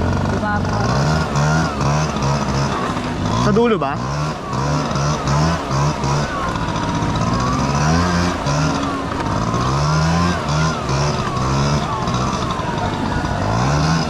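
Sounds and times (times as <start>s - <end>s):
scooter engine running: 0.0s - 14.0s
wavering high whine: 0.9s - 14.0s.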